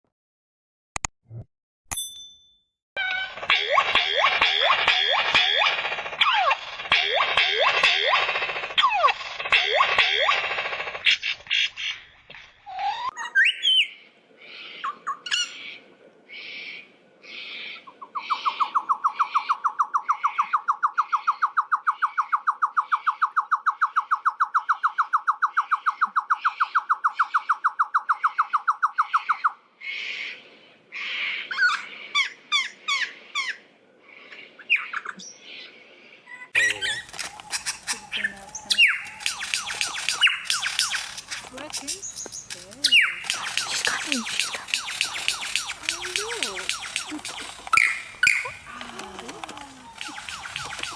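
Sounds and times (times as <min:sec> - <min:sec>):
bird calling: 0:36.3 - 0:50.9.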